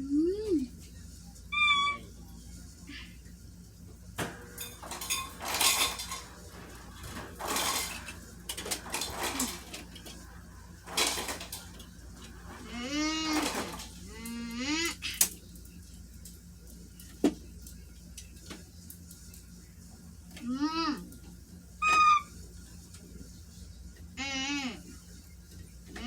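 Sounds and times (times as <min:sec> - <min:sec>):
glass bottles and cans clattering: 0:04.2 - 0:14.0.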